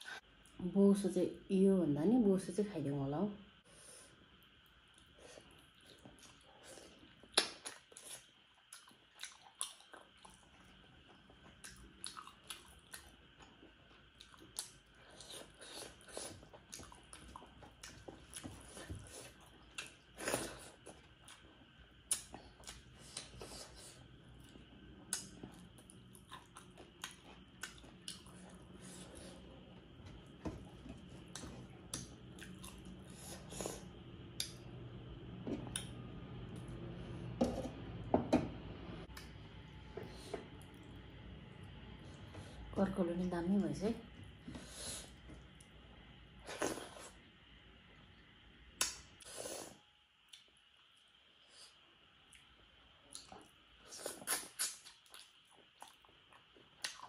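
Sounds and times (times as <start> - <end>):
faint low hum: 0.0 - 57.0
person chewing with wet mouth clicks: 11.4 - 13.1, 24.4 - 28.4, 54.1 - 57.0.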